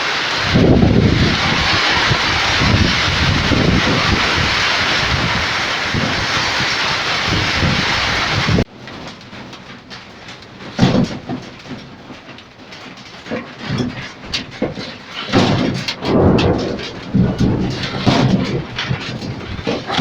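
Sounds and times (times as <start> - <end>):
wind buffeting microphone: 0.0 - 8.7, 15.4 - 20.0
heavy rain pouring: 0.0 - 12.6, 13.2 - 20.0.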